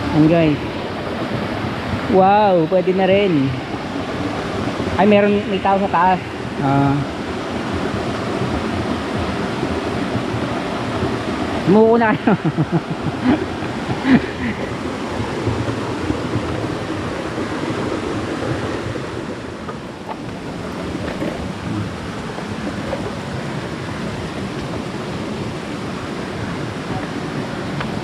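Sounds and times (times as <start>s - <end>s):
small waterfall splashing: 0.0s - 28.0s.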